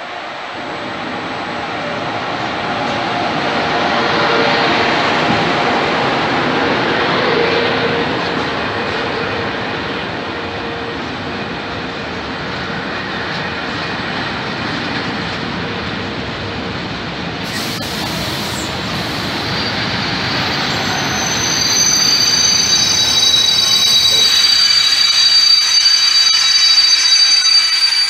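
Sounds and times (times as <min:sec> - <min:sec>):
freight train wheels rumbling: 0:00.0 - 0:28.0
high wheel squeal: 0:17.4 - 0:28.0.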